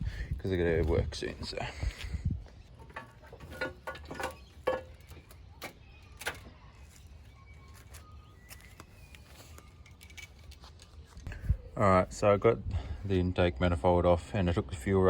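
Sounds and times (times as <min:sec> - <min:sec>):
hand tools clinking on metal: 0:02.8 - 0:05.4.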